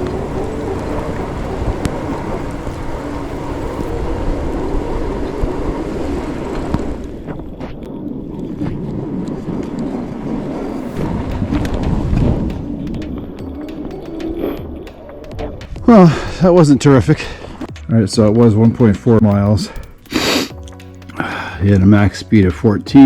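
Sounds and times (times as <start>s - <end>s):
wind rushing over microphone: 0.0s - 17.7s.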